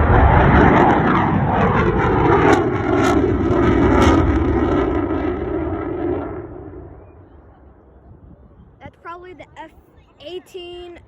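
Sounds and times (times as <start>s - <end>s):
fighter jet roar flying past: 0.0s - 7.9s.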